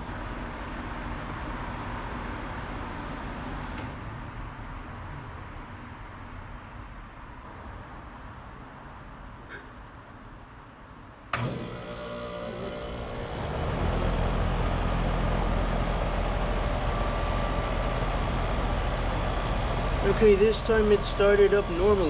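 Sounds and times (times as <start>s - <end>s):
air conditioner condenser running: 0.0s - 4.4s, 8.2s - 22.0s.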